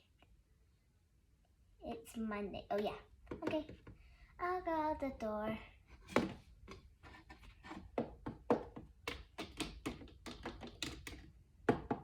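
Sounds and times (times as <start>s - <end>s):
plastic toys tapping: 7.9s - 12.0s.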